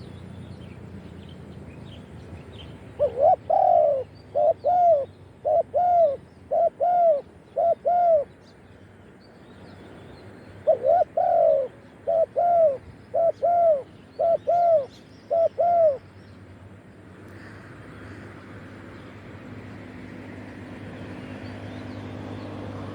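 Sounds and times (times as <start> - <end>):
small birds chirping: 0.0 - 19.9
dove cooing: 3.0 - 8.3, 10.6 - 16.0.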